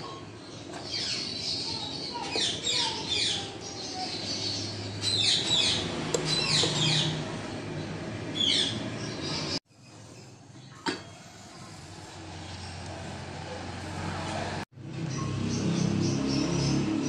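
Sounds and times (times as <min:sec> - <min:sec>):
birds calling: 0:00.0 - 0:11.4, 0:15.0 - 0:17.0.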